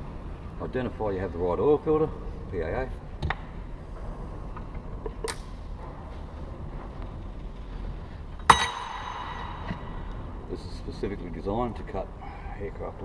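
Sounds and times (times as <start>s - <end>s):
low hum: 0.0s - 13.0s
ringing metallic clank: 8.4s - 10.4s.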